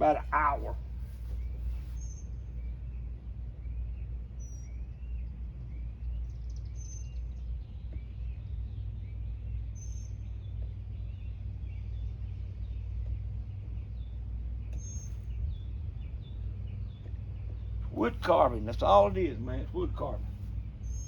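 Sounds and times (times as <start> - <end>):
low rumble: 0.0 - 21.0
bird chirping: 14.8 - 21.0.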